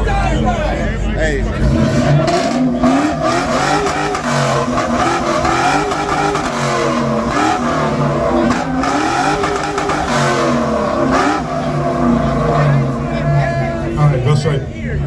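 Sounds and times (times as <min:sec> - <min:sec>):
car engine revving: 0:00.3 - 0:15.0.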